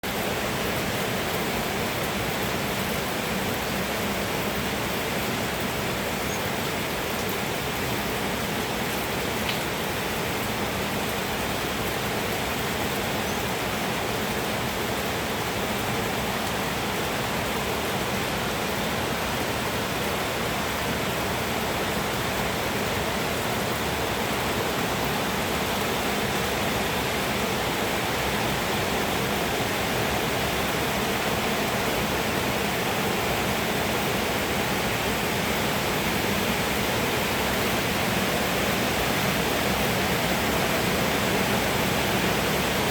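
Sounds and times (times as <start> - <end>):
rain pouring down: 0.0 - 42.9.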